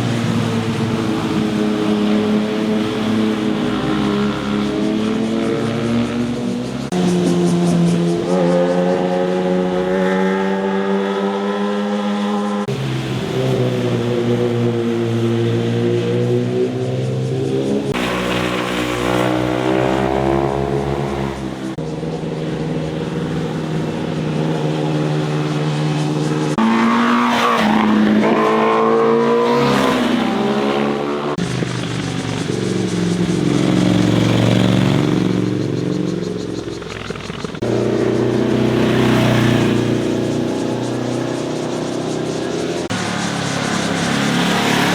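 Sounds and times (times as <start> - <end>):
motorcycle engines revving: 0.0 - 44.9.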